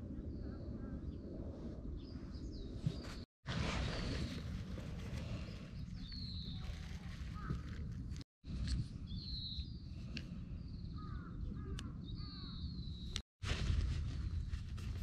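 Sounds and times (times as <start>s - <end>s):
lower curved bird calls: 9.0s - 13.2s.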